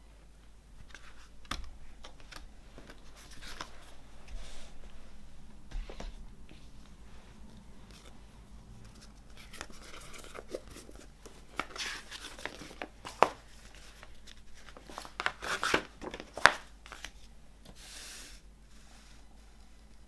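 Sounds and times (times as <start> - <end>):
packaging rustling and crinkling: 8.8 - 17.3.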